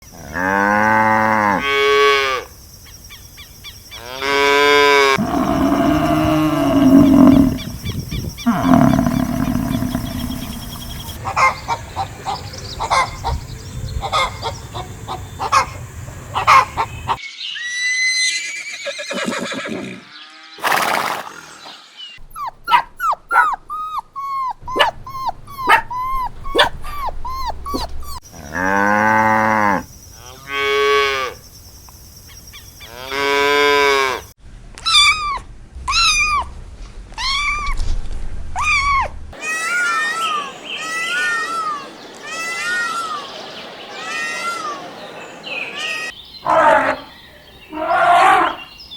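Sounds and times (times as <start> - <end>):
cow mooing: 4.1 - 7.8, 8.4 - 11.2
animal calls and chirps: 5.2 - 28.2, 38.6 - 48.9.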